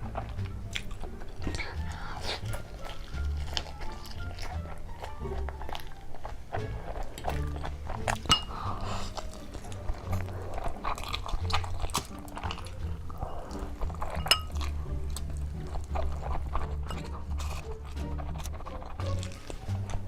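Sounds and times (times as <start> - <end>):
chewing and crunching: 0.0 - 20.0
background music with bass: 6.4 - 20.0
utensil clinking on dish: 8.1 - 8.9, 13.3 - 14.7.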